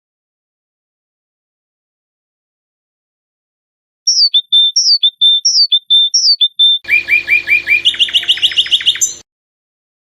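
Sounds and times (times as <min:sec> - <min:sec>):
songbird singing: 0:04.1 - 0:09.2.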